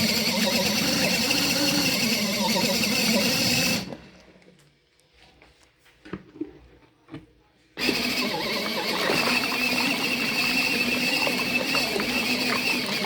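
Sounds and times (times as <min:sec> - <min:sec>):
washing machine running: 0:00.0 - 0:04.3, 0:07.8 - 0:13.0.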